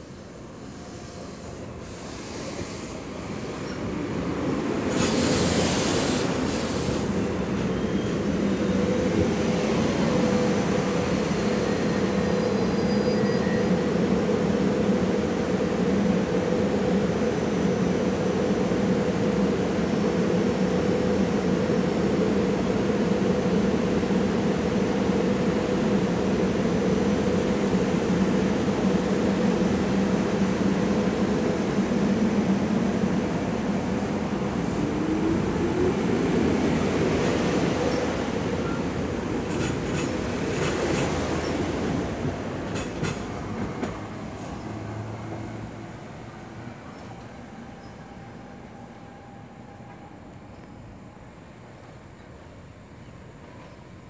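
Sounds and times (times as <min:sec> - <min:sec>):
electric train pulling in: 0:00.0 - 0:54.0
standing train hum: 0:00.0 - 0:54.0
burst of hiss: 0:04.9 - 0:07.2.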